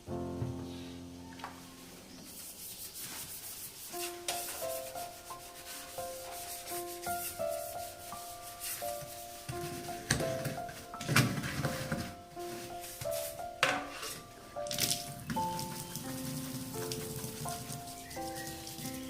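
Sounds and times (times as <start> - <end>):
simple melody of held notes: 0.0 - 1.9
scraping and rubbing: 2.1 - 14.3, 15.0 - 19.0.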